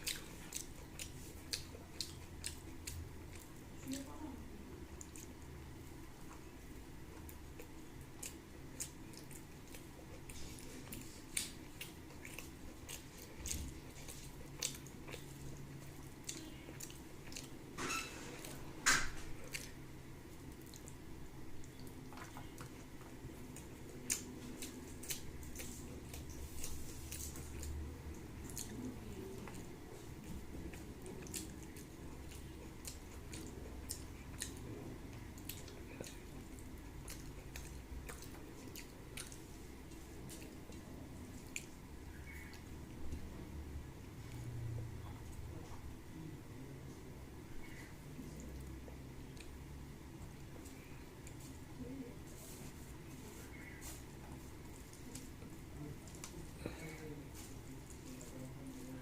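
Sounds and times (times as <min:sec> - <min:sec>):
wet chewing and lip-smacking: 0:00.0 - 0:04.2, 0:04.8 - 0:17.6, 0:19.2 - 0:43.3.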